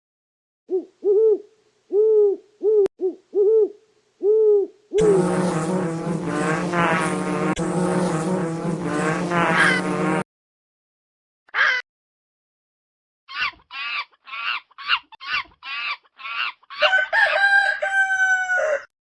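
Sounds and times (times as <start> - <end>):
dense rising and falling tones: 5.0 - 10.2.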